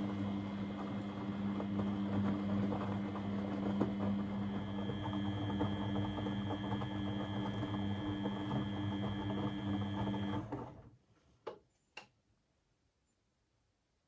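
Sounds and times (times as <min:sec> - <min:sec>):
washing machine motor hum: 0:00.0 - 0:11.0.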